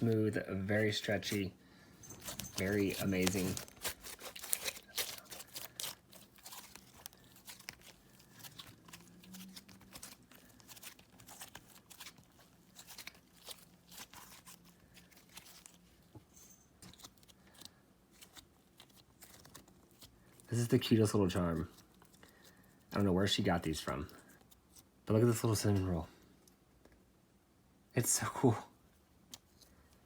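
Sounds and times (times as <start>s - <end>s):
hands squishing slime: 2.2s - 15.9s.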